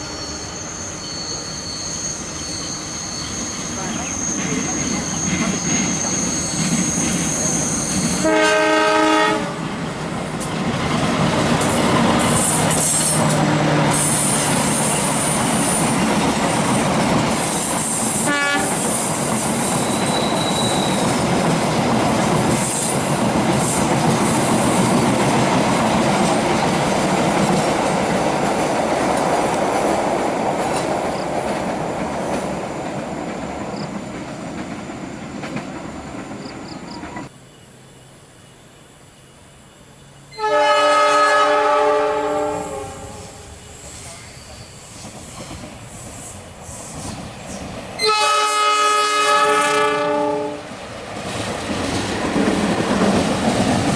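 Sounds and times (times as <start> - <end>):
high squeal: 0.0 - 8.3, 18.8 - 23.0, 43.3 - 47.2
train wheels rumbling on rails: 0.0 - 37.4, 39.4 - 53.9
train horn blast: 8.1 - 9.8, 18.2 - 19.0, 40.3 - 43.6, 48.0 - 50.7.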